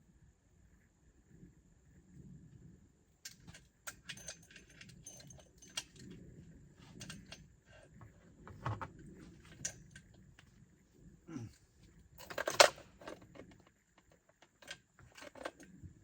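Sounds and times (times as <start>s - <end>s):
saw chain clinking: 3.9s - 6.0s.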